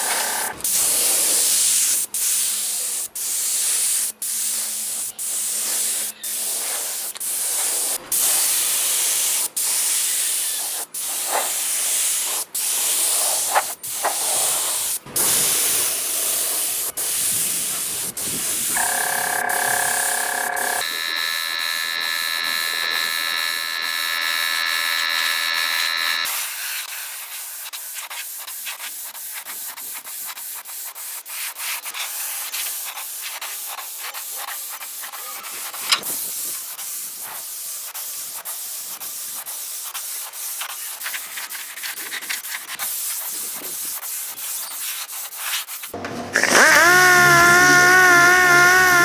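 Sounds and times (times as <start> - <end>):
steady high whine: 18.8 - 26.3
abrasive rubbing strokes: 46.4 - 49.0.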